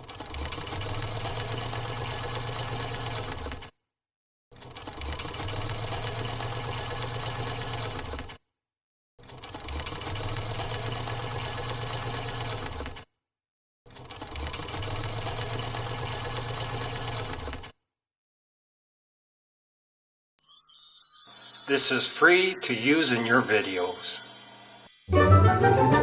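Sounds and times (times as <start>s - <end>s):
sewing machine running: 0.0s - 3.7s, 4.5s - 8.4s, 9.2s - 13.1s, 13.9s - 17.7s.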